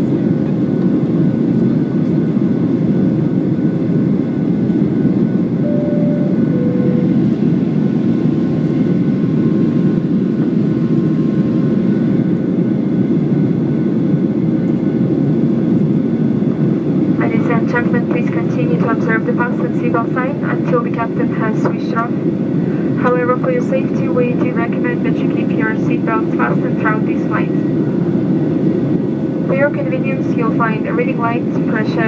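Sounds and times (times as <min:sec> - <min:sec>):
jet engine cabin noise: 0:00.0 - 0:32.0
two-note cabin chime: 0:05.6 - 0:07.6.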